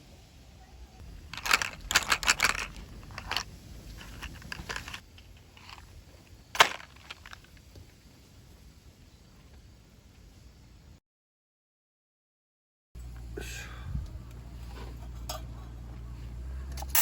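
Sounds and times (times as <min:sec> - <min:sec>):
handling crackles and clicks: 0:01.2 - 0:06.0, 0:06.6 - 0:07.9.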